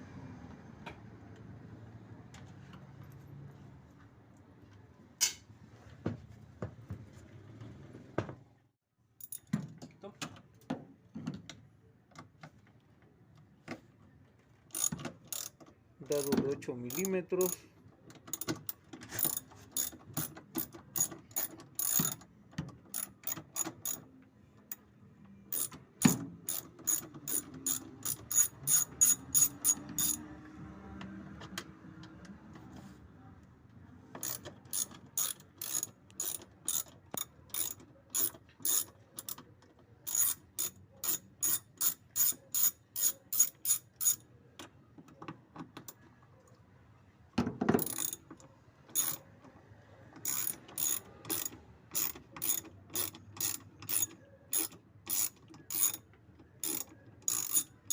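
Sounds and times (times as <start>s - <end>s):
ratchet wrench clicking: 14.7s - 17.6s, 18.3s - 22.2s, 25.5s - 30.2s, 34.2s - 39.4s, 40.1s - 44.2s, 47.8s - 48.2s, 48.9s - 49.2s, 50.2s - 56.0s, 56.6s - 57.9s.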